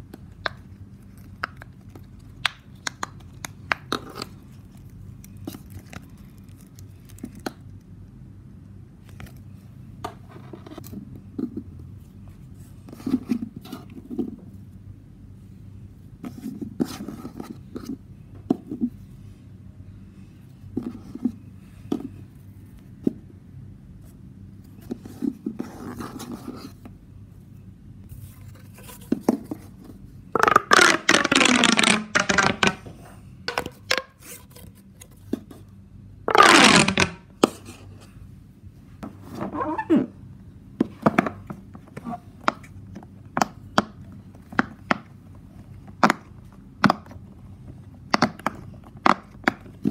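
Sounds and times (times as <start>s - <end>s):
stretchy toy scraping and tapping: 30.4s - 34.4s
pop tube ribbed zipping sweeps: 36.3s - 37.2s.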